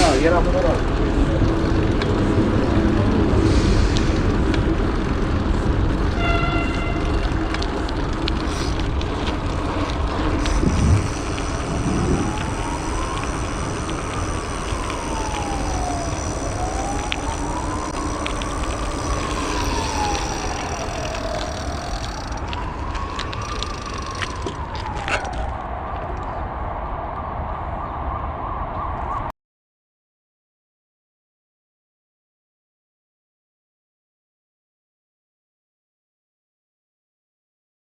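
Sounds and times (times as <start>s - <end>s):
city traffic and road noise: 0.0s - 29.3s
emergency vehicle siren wailing: 8.7s - 26.6s.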